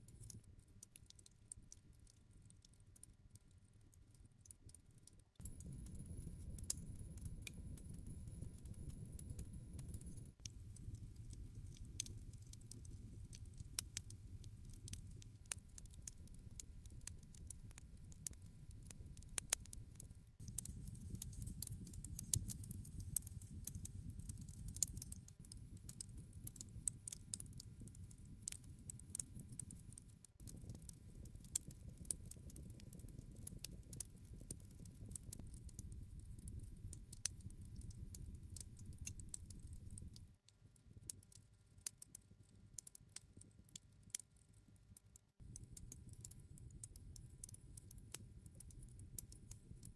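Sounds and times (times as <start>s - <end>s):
campfire crackling and popping: 9.7s - 41.3s
flames burning: 9.8s - 17.4s, 20.5s - 40.2s.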